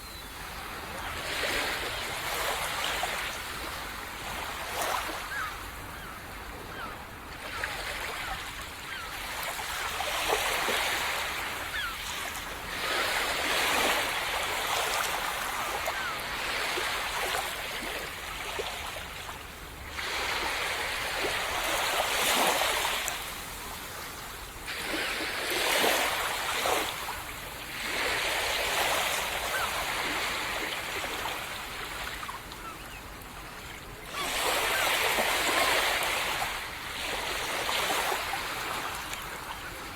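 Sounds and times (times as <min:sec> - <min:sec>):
small waves breaking on sand: 0:00.0 - 0:39.9.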